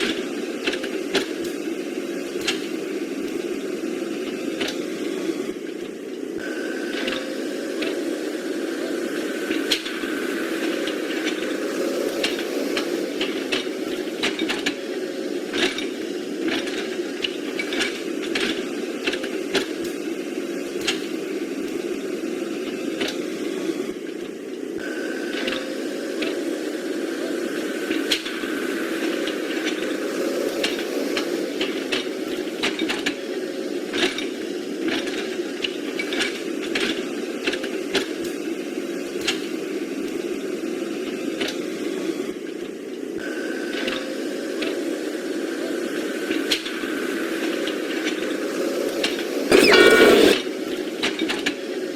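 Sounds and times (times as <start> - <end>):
small electric motors whirring: 49.5 - 50.4.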